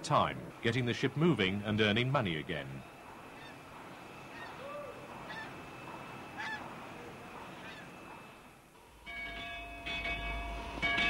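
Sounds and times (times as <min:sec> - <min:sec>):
background hiss: 0:00.0 - 0:11.0
birds calling: 0:02.4 - 0:08.5.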